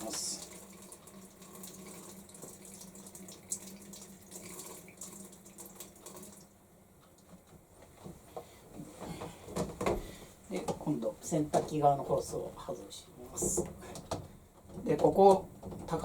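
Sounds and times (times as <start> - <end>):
water splashing into sink drain: 0.0 - 6.5.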